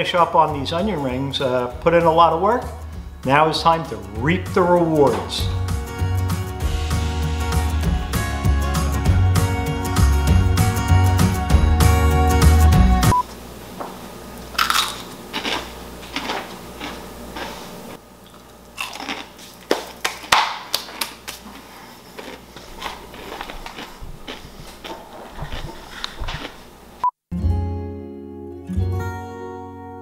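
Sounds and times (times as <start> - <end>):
background music: 0.0 - 13.2, 27.3 - 30.0
onion rings crunching: 14.4 - 26.7.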